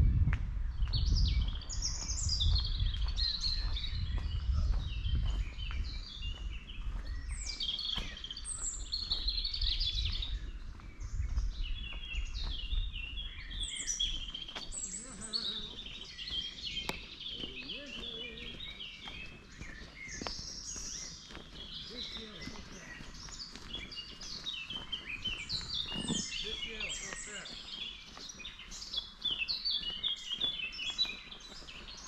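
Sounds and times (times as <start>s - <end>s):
songbirds singing: 0.0s - 32.0s.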